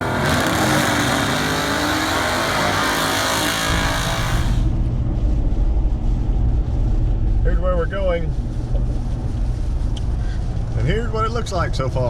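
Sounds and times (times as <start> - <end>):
car engine accelerating: 0.0 - 4.8
loud hiss: 0.2 - 4.7
steady low rumble: 3.5 - 12.0.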